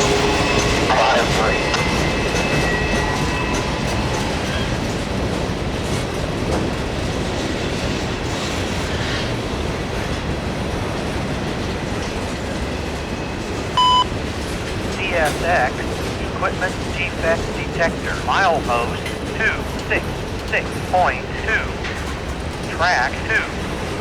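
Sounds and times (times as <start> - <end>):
train wheels rumbling on rails: 0.0 - 24.0
radio scanner beep: 13.8 - 14.1, 15.0 - 21.8, 22.7 - 23.6.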